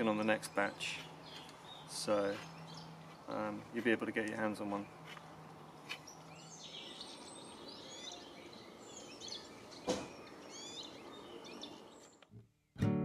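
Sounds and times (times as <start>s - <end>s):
small birds chirping and trilling: 0.0s - 12.3s
short thump: 9.8s - 10.2s.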